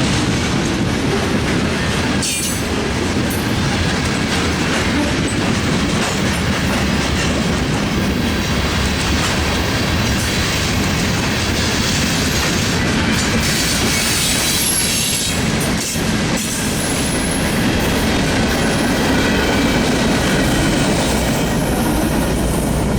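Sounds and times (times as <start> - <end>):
train wheels rumbling on rails: 0.0 - 22.9
train wheel squeals: 11.6 - 22.9.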